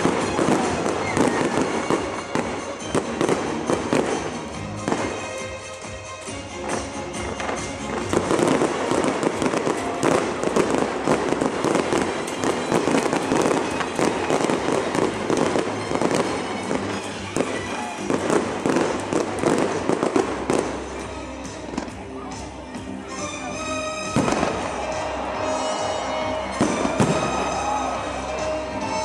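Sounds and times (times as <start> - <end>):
fireworks bangs and crackles: 0.0 - 29.0
music playing: 0.0 - 29.0.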